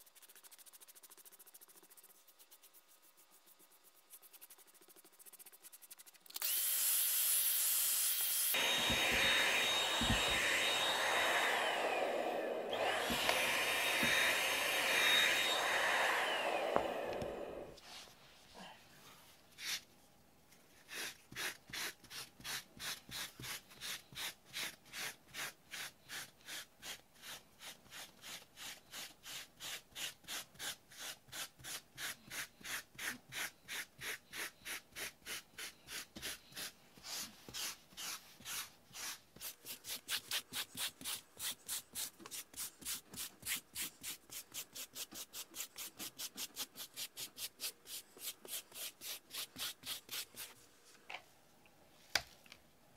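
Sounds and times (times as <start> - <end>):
brush scrubbing carpet: 0.0 - 6.2, 8.6 - 17.6.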